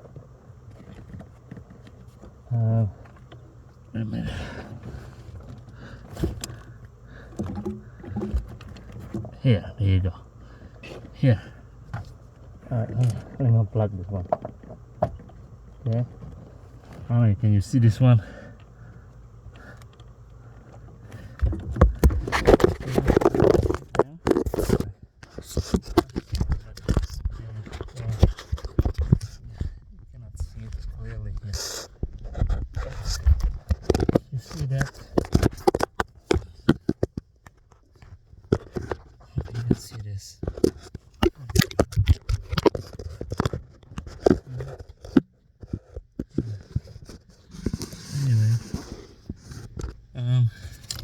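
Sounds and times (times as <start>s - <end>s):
faint low hum: 0.0s - 51.0s
hands handling parts: 4.6s - 9.4s, 18.6s - 29.4s
hands scraping plastic trim: 21.5s - 29.3s, 32.2s - 50.0s.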